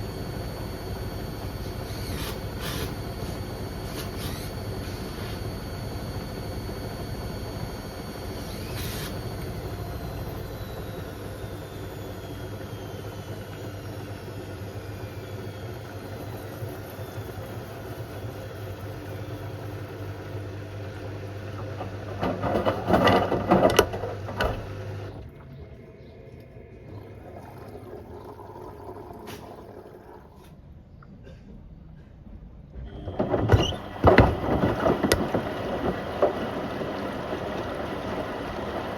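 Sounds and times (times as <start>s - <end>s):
washing machine motor whine: 0.0s - 31.0s, 32.6s - 38.9s
washing machine drum clattering: 21.6s - 25.0s.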